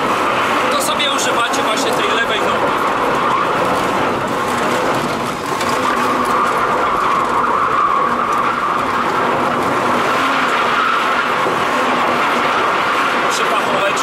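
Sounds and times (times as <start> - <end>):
car engine at high revs: 0.0 - 14.0
tyres spinning on sand: 0.0 - 14.0.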